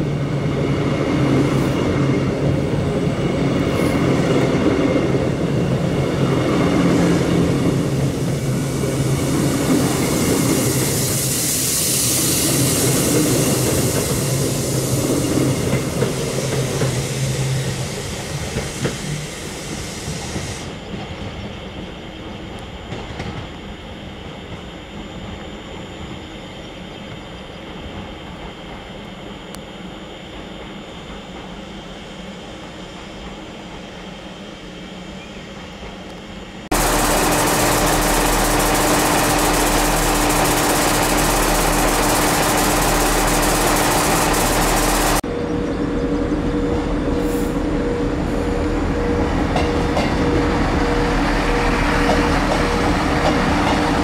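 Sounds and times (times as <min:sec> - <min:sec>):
train passing: 0:00.0 - 0:24.8, 0:32.4 - 0:54.0
train hiss: 0:05.6 - 0:25.4, 0:26.2 - 0:45.2, 0:47.1 - 0:48.6.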